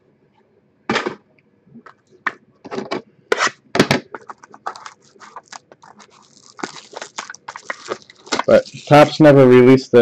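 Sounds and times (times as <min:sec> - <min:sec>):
cardboard packaging scraping: 0:03.3 - 0:09.1.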